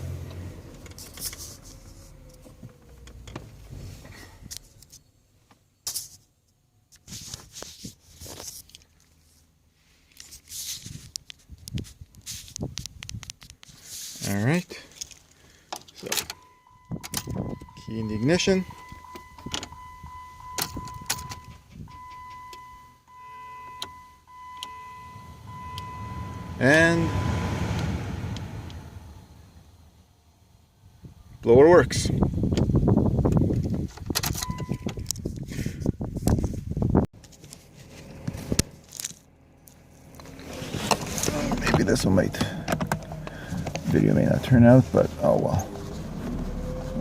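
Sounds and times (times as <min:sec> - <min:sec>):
low rumble: 0:24.8 - 0:31.2.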